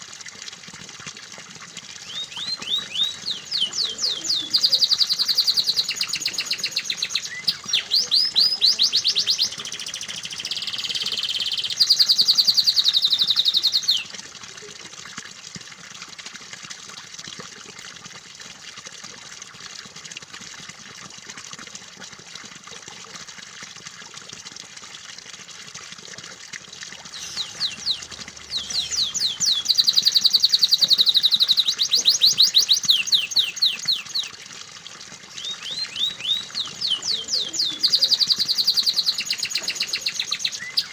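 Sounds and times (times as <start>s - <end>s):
running water: 0.0s - 40.9s
canary singing trills: 2.0s - 14.1s, 27.1s - 34.3s, 35.3s - 40.9s.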